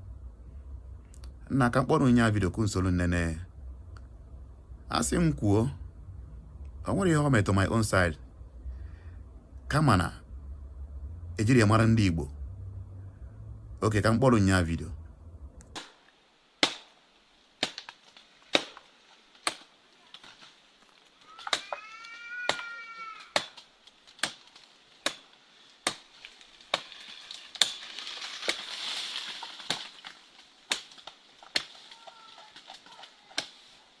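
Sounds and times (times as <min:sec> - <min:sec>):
machete chopping palm tree: 0:15.7 - 0:20.6, 0:21.3 - 0:34.0
animal call rising and falling: 0:21.2 - 0:23.5.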